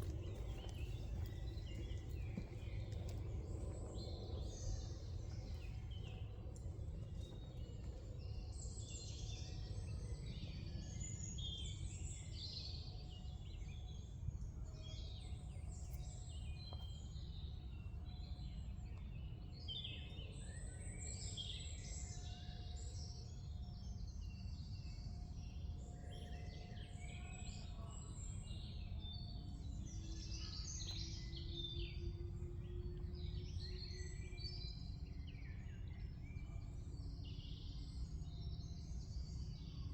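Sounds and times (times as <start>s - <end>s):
low background rumble: 0.0s - 26.1s
songbirds chirping and trilling: 0.0s - 39.9s.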